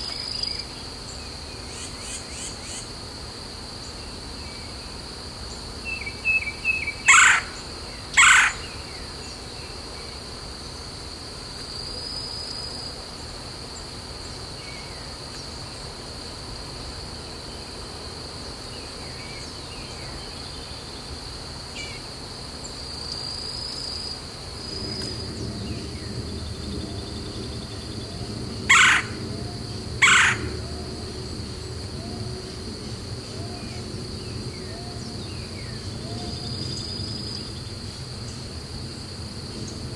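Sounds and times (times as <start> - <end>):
harsh bird calls: 6.3 - 9.1, 24.8 - 37.9
high-pitched insect drone: 21.8 - 39.9
low background rumble: 24.3 - 39.9.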